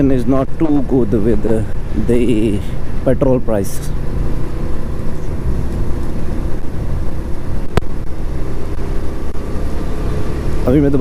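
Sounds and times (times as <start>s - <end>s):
motorcycle engine running: 0.0s - 11.0s
wind noise on microphone: 4.0s - 9.5s.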